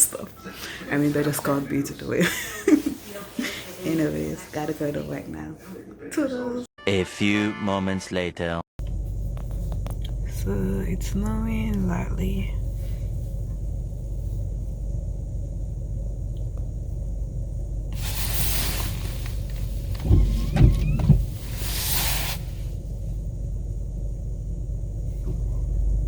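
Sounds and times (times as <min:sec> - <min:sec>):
car engine and tyres rumbling: 0:08.8 - 0:26.0
hiss: 0:17.9 - 0:22.8.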